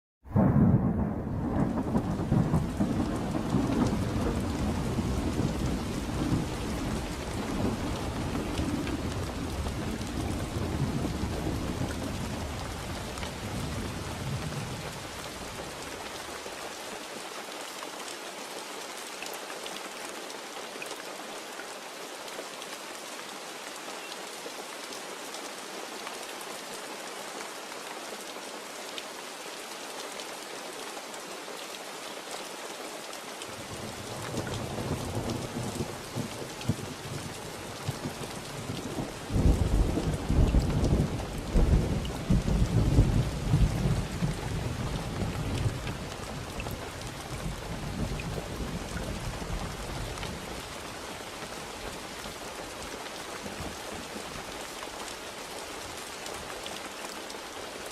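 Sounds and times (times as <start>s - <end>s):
rolling thunder: 0.3s - 15.0s
steady rain falling: 0.3s - 57.9s.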